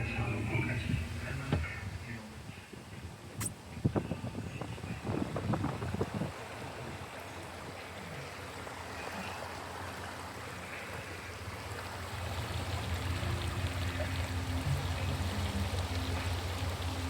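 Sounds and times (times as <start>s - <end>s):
floodwater rushing along street: 0.0s - 17.0s
low rumble: 11.5s - 17.0s.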